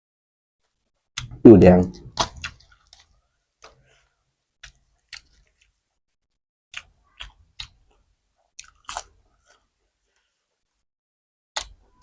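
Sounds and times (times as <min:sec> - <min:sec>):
person chewing crunchy food: 0:02.1 - 0:05.8, 0:06.8 - 0:10.4.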